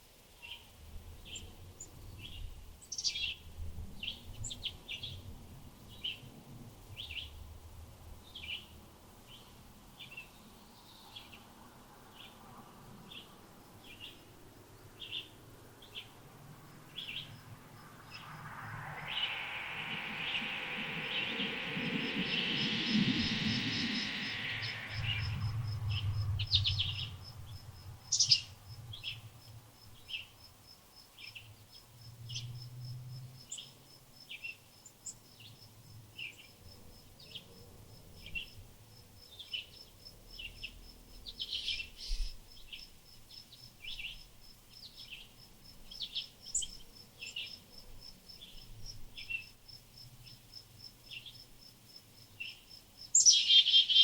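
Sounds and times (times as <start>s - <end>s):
small birds chirping: 0.4s - 5.2s, 13.0s - 14.3s, 14.9s - 16.2s, 16.8s - 30.4s, 39.2s - 47.6s, 52.3s - 54.0s
rushing noise: 16.2s - 28.1s
high-pitched insect pulses: 16.9s - 28.3s.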